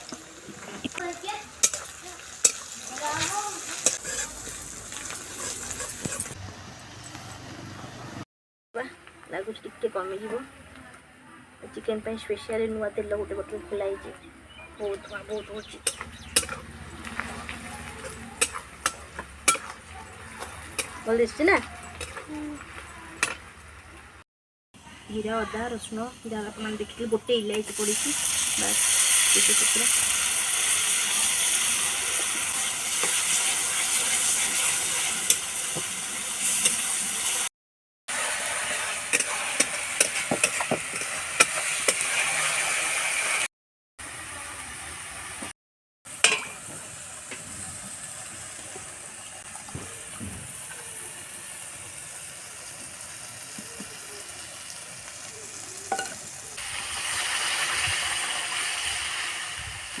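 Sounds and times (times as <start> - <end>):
spices sizzling in hot oil: 0.0 - 6.4, 14.8 - 24.2, 25.1 - 37.5, 38.1 - 43.5, 46.1 - 60.0
spoon stirring in a pan: 0.1 - 6.4, 15.6 - 23.6, 32.9 - 35.9, 38.6 - 42.5.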